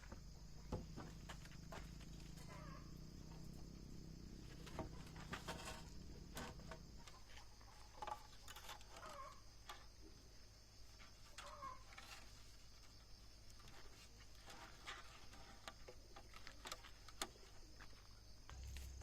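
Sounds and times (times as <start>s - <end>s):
insects droning: 0.0s - 19.0s
low hum: 18.5s - 19.0s.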